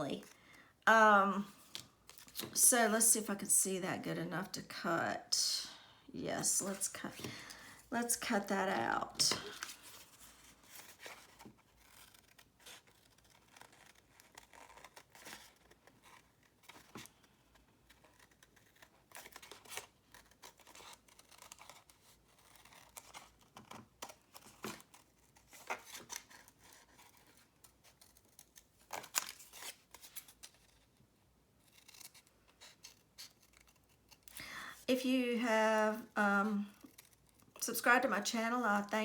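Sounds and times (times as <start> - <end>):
scissors snipping paper: 31.7 - 34.4, 36.7 - 37.6.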